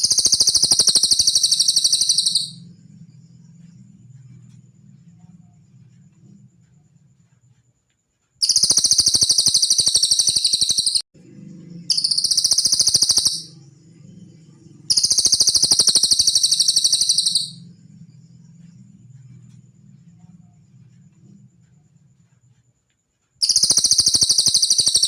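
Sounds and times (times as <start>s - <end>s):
songbird fast trills: 0.0s - 2.9s, 8.4s - 11.0s, 11.8s - 18.0s, 23.4s - 25.0s.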